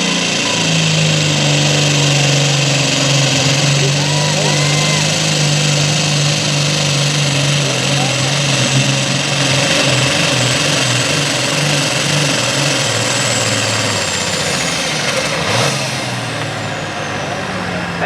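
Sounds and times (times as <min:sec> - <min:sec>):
diesel tractor engine under load: 0:00.0 - 0:18.0
high turbo whine: 0:00.0 - 0:18.0.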